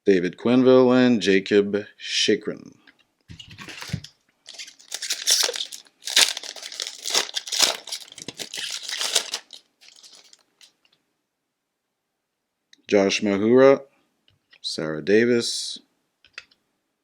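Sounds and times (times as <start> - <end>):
foil wrapper crinkling and tearing: 3.6 - 10.7.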